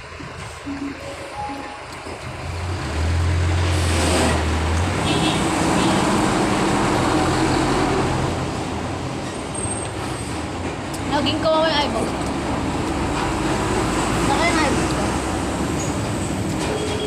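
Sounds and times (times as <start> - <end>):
vehicle engine drone: 0.0 - 11.4
steady road noise: 0.0 - 17.0.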